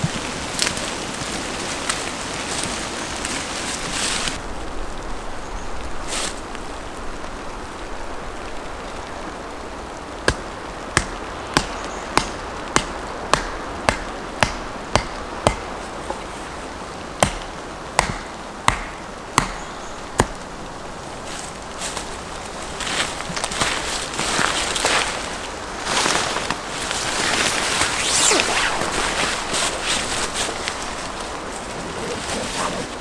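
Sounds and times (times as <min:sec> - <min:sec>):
tool striking wood: 0:18.0 - 0:19.6.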